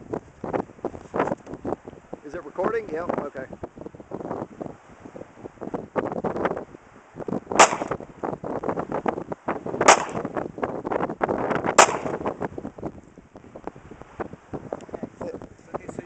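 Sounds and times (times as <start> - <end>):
pistol shots: 7.6 - 8.0, 9.8 - 10.3, 11.8 - 12.2.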